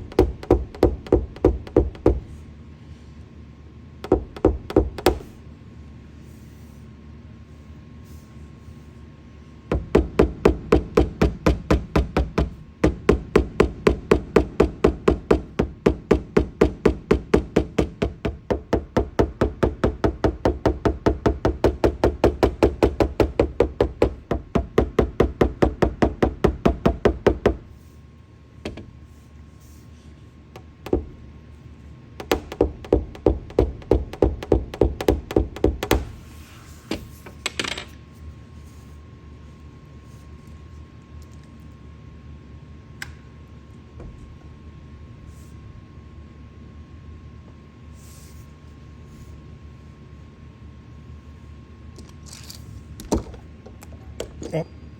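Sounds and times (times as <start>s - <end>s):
hammer tapping on sheet metal: 0.0s - 2.3s, 4.0s - 5.4s, 9.7s - 27.6s, 30.6s - 31.2s, 32.2s - 36.2s.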